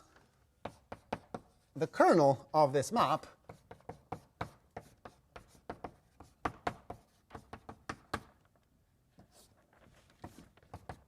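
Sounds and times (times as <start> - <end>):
chalk tapping on a blackboard: 0.6 - 1.8, 3.4 - 8.4, 10.2 - 11.0.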